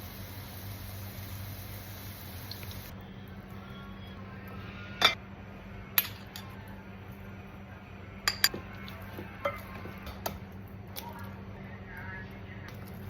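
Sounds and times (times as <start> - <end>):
utensils clinking against cookware: 8.3 - 10.4.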